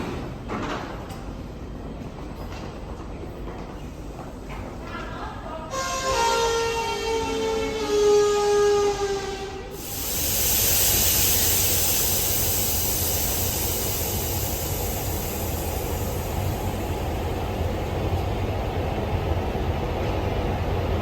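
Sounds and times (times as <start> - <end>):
train horn: 5.7 - 9.8
train rushing on rails: 5.8 - 21.0.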